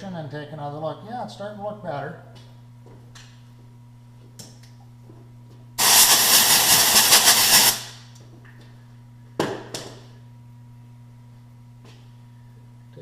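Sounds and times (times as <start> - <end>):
pressurized spray hissing: 5.8 - 7.9.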